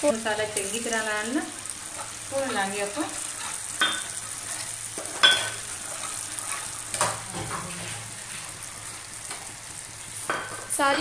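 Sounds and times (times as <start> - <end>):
food sizzling in hot oil: 0.0 - 11.0
metal spoon stirring steel pot: 1.9 - 7.1.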